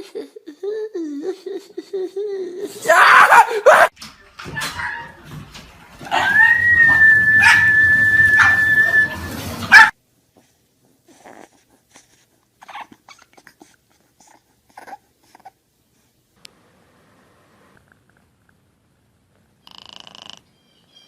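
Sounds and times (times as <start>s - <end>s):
dog whining: 6.1s - 9.9s, 11.1s - 15.6s
faint small noises: 9.7s - 20.6s.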